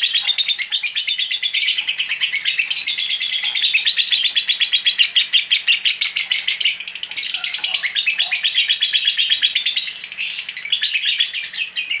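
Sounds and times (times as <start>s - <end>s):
lovebird chattering shrill chirps: 0.0s - 12.0s.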